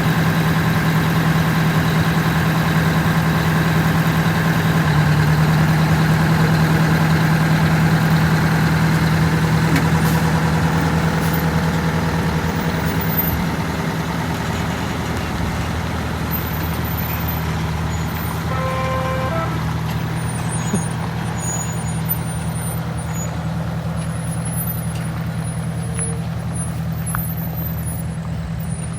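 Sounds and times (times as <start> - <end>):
diesel engine idling: 0.0 - 28.9
brief pitched tone: 17.9 - 20.8.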